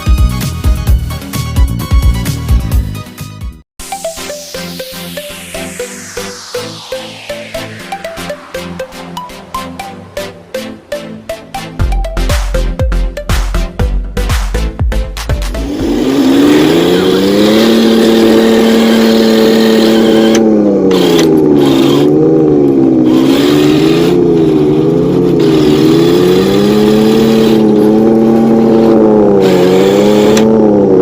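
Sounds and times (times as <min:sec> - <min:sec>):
remote-control vehicle engine drone: 0:15.6 - 0:31.0.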